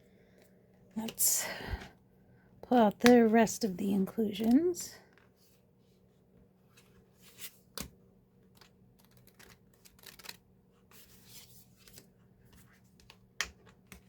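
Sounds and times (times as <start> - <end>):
paper rustling and clicks: 6.8 - 10.4.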